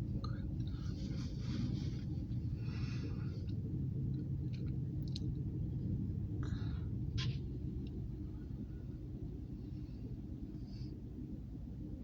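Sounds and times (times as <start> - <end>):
steady low rumble: 0.0 - 12.0
person breathing softly: 0.2 - 3.6, 6.4 - 7.0, 8.2 - 11.3.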